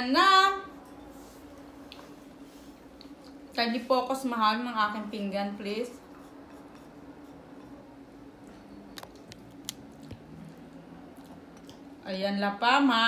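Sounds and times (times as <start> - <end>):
person chewing rice: 8.9 - 11.9.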